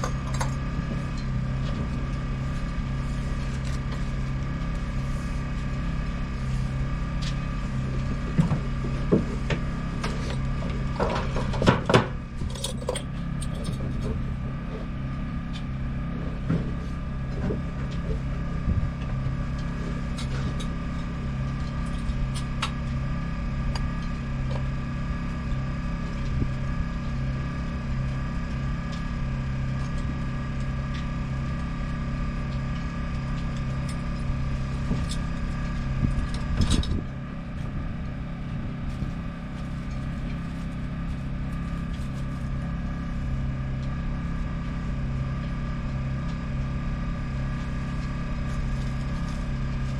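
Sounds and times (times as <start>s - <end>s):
motor humming: 0.0s - 49.9s.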